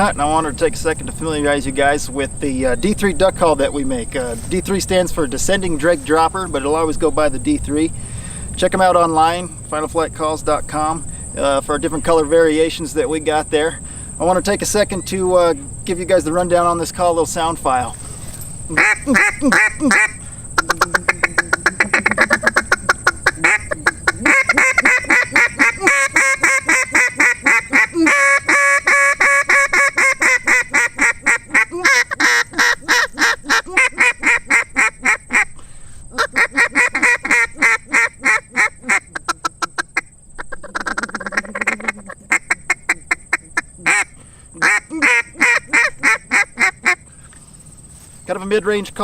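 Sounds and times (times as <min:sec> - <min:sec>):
high insect drone: 0:00.0 - 0:49.0
duck call quacks: 0:18.7 - 0:35.5, 0:36.1 - 0:47.0.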